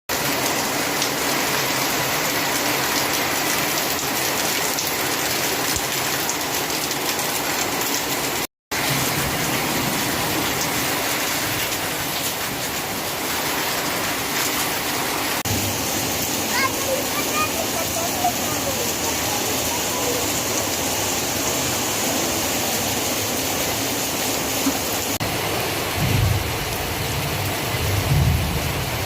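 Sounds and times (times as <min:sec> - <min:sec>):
heavy rain hissing: 0:00.1 - 0:29.0.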